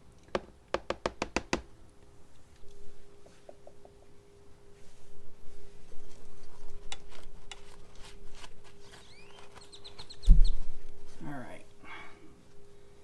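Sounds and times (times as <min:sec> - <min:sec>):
high rising chirps: 0:09.0 - 0:10.6.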